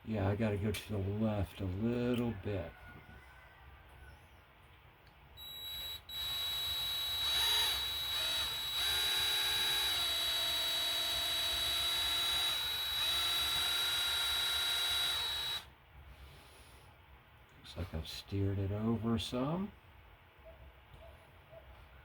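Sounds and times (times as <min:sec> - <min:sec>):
electric drill whining: 0:05.4 - 0:15.7.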